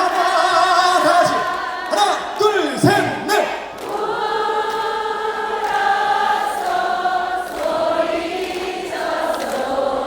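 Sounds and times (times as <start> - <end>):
crowd singing without accompaniment: 0.0 - 10.0.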